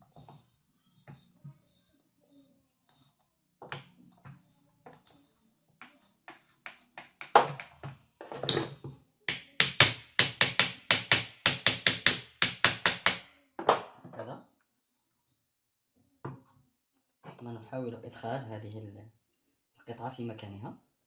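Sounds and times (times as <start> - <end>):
sharp taps on drill parts: 5.8 - 7.8, 9.3 - 13.2.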